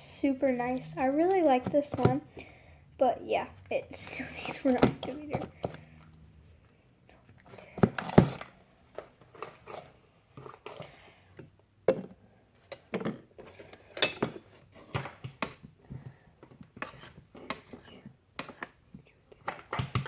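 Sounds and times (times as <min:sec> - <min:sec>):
sticky slime being stirred: 0:00.0 - 0:02.4, 0:03.0 - 0:06.0, 0:07.4 - 0:12.2, 0:12.8 - 0:20.0
utensil scraping a bowl: 0:16.8 - 0:18.8.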